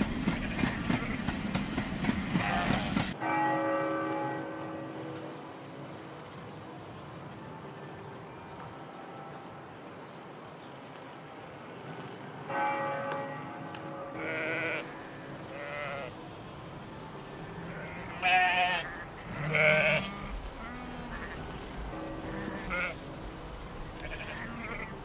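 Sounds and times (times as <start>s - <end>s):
sheep bleating: 14.2s - 16.2s, 17.6s - 23.0s, 24.0s - 25.0s.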